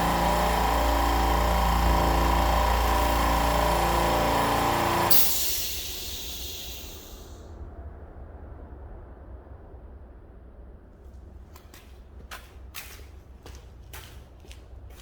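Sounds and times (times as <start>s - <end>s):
air compressor motor running: 0.0s - 7.4s
air hissing out: 0.0s - 7.4s.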